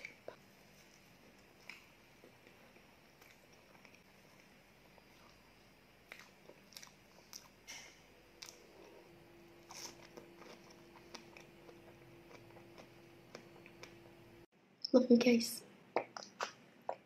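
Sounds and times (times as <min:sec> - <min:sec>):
chewing soft pastry: 0:00.0 - 0:14.5
wet mouth clicks and smacks: 0:15.9 - 0:17.0.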